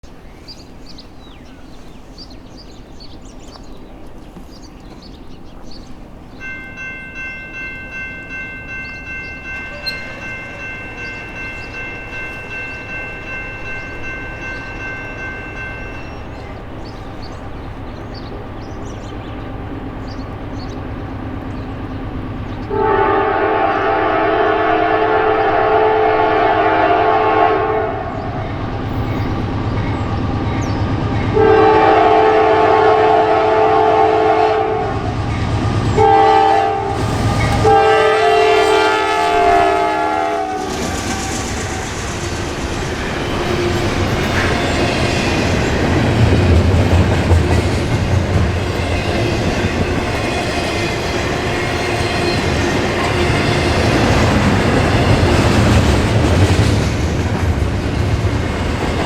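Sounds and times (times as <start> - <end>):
locomotive engine rumbling: 0.0 - 59.0
locomotive air horn blasts: 22.7 - 28.2, 31.4 - 35.1, 36.0 - 40.8
train wheels clattering over rail joints: 40.6 - 59.0.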